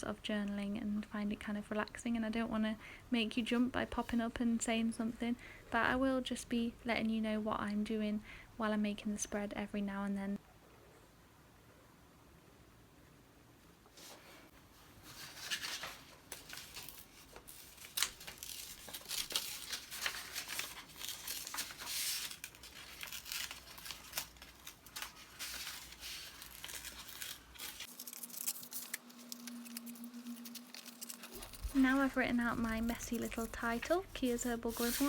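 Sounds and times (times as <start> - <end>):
paper rustling and crinkling: 14.0 - 35.0
paper tearing: 15.2 - 35.0.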